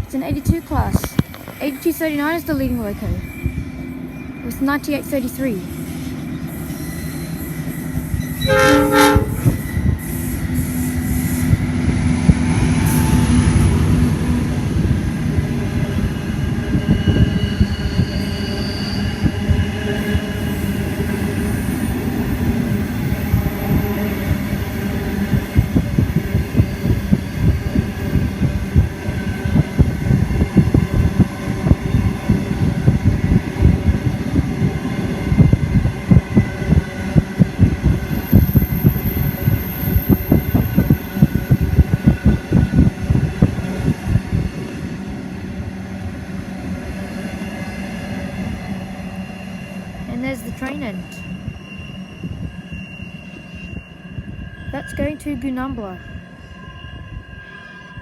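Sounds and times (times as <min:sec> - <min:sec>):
train horn blast: 0:08.4 - 0:09.7.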